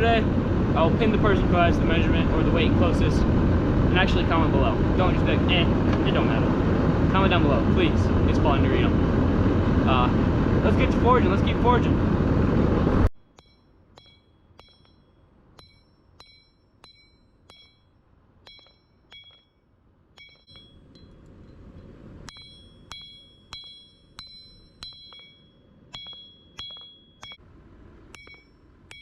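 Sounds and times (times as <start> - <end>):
low rushing noise: 0.0 - 13.1
hammer striking metal on anvil: 13.3 - 19.6, 20.2 - 21.2, 22.3 - 27.4, 28.1 - 29.0
anvil ringing: 13.3 - 21.2, 22.2 - 27.4, 28.2 - 29.0.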